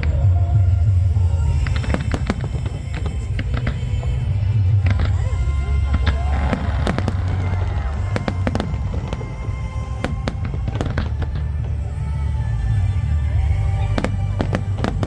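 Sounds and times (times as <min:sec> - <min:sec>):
low rumble: 0:00.0 - 0:15.0
show music: 0:00.0 - 0:15.0
fireworks crackling bangs: 0:01.7 - 0:04.1, 0:04.9 - 0:11.8, 0:13.9 - 0:15.0.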